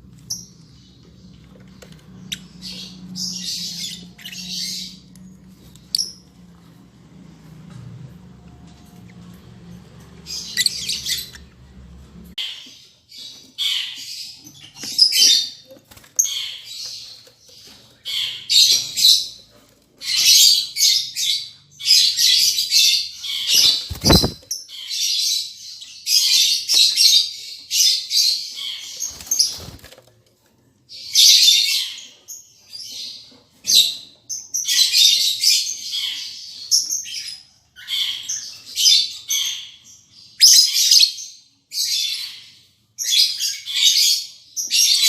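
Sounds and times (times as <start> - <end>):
lovebirds screeching: 0.1 - 6.3, 10.3 - 11.6, 12.4 - 19.4, 20.0 - 25.1.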